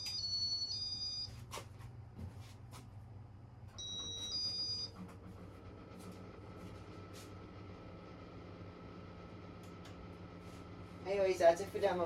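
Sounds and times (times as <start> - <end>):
fan motor humming: 0.0 - 12.0
two-tone beep: 3.8 - 4.9.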